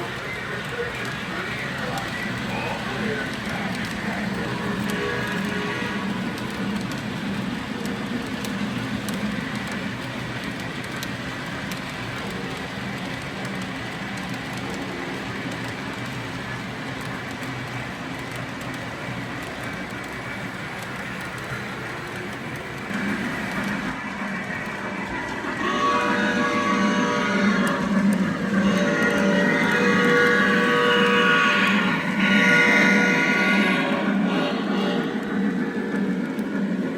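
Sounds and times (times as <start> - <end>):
faint clicks: 0.0 - 25.3
model train rumbling on rails: 0.0 - 36.9.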